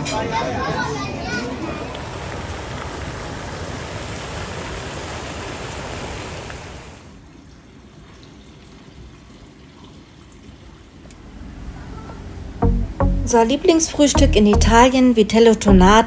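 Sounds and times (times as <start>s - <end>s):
water rushing: 1.3s - 8.0s.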